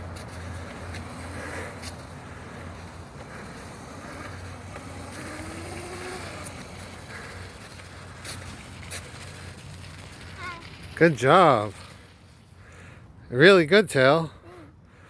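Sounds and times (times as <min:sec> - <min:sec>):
electric motorbike motor whining: 0:00.6 - 0:12.2.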